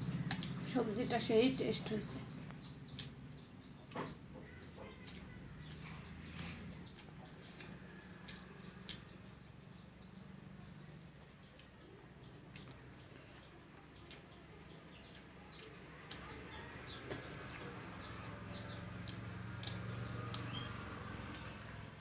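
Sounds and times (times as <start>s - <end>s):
eating clicks: 0.0s - 0.7s, 1.7s - 21.7s
small bird chirping: 0.0s - 21.9s.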